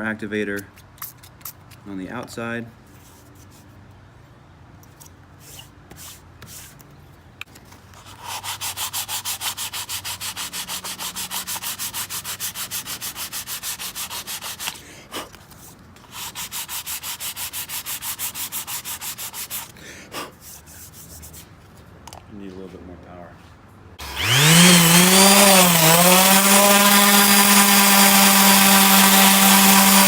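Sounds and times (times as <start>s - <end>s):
sandpaper rubbing on wood: 8.0s - 14.8s, 16.0s - 19.7s, 24.2s - 30.0s.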